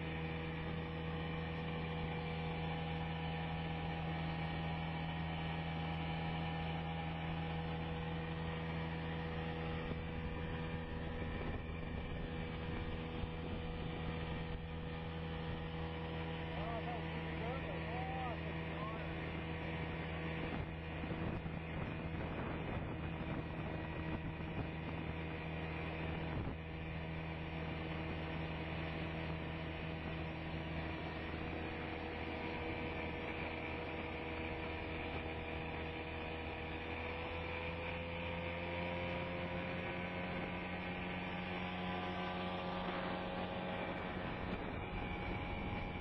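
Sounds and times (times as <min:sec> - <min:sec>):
boat engine drone: 0:00.0 - 0:46.0.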